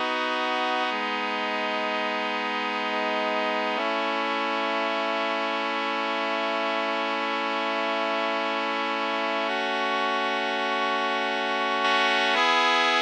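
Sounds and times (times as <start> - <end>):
brass section sustained chords: 0.0 - 13.0.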